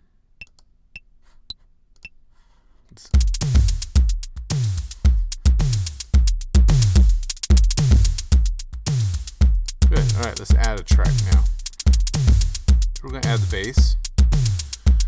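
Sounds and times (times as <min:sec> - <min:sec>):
hi-hat ticks: 0:03.0 - 0:15.0
deep kick drum: 0:03.2 - 0:15.0.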